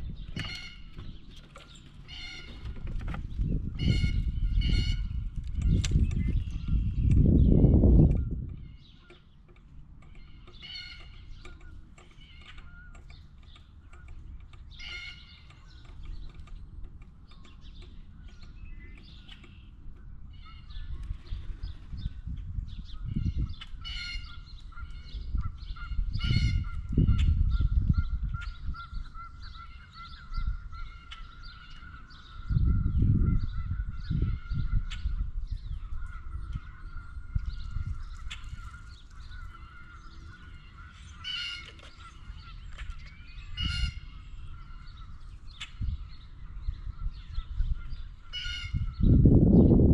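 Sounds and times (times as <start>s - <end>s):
blue jays calling: 38.0s - 45.3s.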